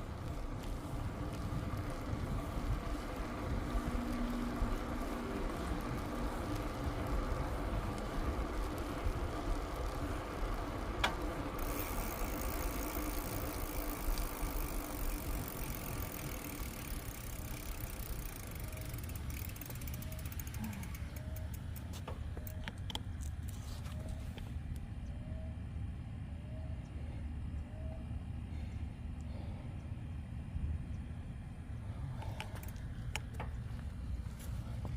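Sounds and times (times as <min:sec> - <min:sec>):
bicycle tyre noise: 0:00.0 - 0:22.6
freewheel hub ticking: 0:00.0 - 0:23.3.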